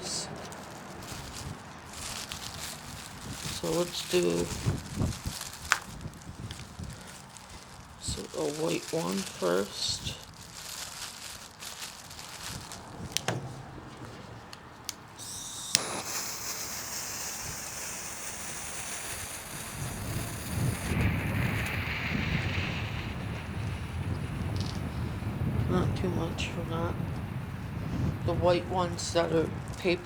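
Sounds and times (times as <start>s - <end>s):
wind rumbling on microphone: 0.0s - 30.0s
smoke ball hissing: 1.1s - 10.3s, 15.0s - 30.0s
sharp clicks: 14.5s - 16.7s.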